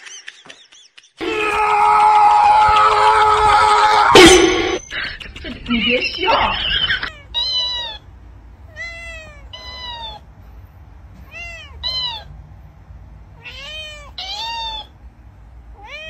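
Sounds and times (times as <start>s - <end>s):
cat meowing: 7.0s - 10.3s, 11.2s - 12.3s, 13.3s - 15.0s, 15.7s - 16.0s.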